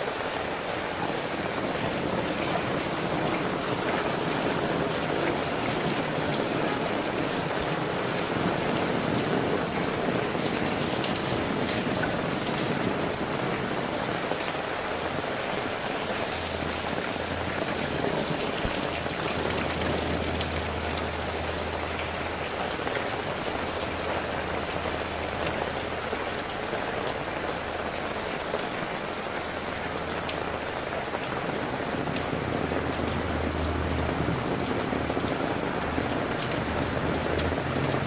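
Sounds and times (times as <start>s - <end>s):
heavy rain falling: 0.0s - 38.0s.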